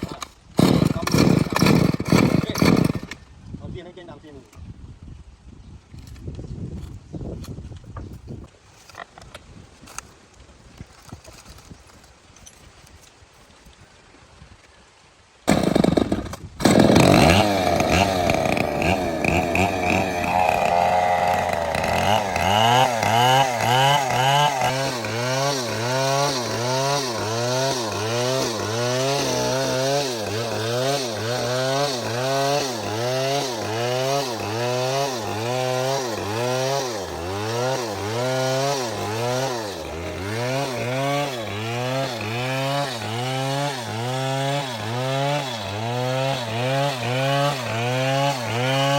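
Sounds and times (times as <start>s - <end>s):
chainsaw cutting wood: 0.0s - 3.3s, 15.5s - 48.9s.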